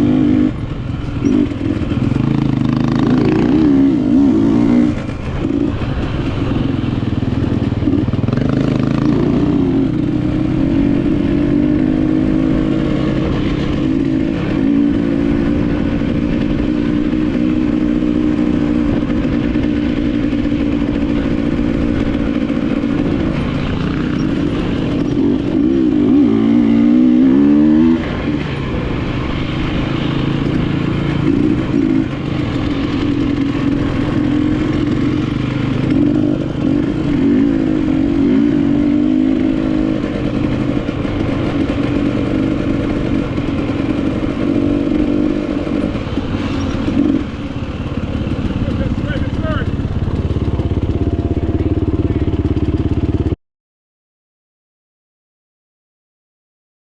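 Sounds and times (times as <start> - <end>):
motorcycle engine revving: 0.0 - 53.4.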